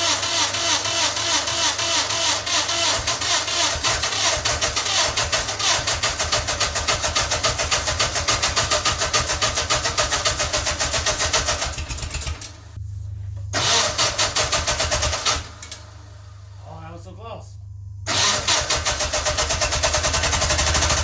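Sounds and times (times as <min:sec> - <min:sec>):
engine turning over under starter: 0:00.0 - 0:12.6, 0:13.5 - 0:16.5, 0:18.0 - 0:21.0
low hum: 0:12.2 - 0:18.1.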